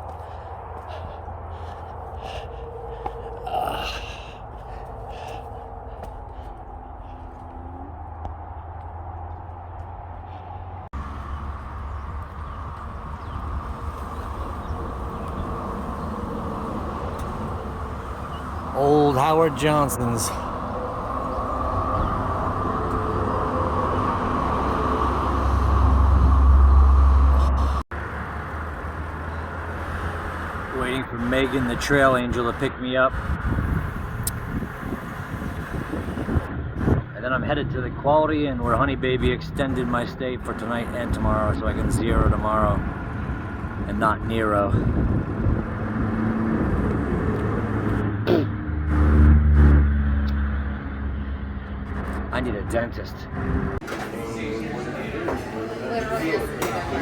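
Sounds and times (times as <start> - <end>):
vehicle engine running: 0.0 - 19.2
heavy vehicle passing: 0.0 - 37.2, 38.6 - 57.0
highway traffic hum: 0.0 - 57.0.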